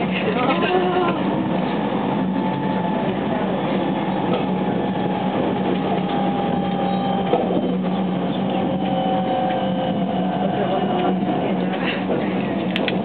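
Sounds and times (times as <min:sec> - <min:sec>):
wheels rumbling on rail: 0:00.0 - 0:13.0.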